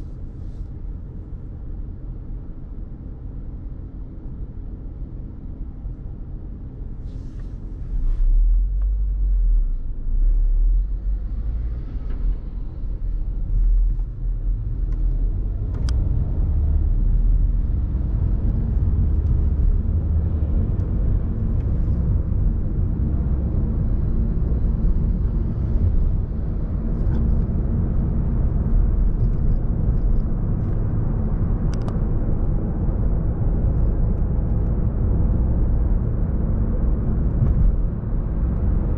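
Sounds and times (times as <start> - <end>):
passing cars rumbling: 10.7 - 38.9.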